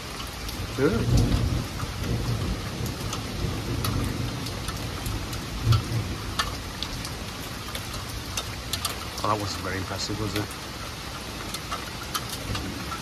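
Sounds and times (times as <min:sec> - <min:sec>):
heavy rain on trees: 0:00.0 - 0:13.0
drops ticking: 0:03.1 - 0:13.0.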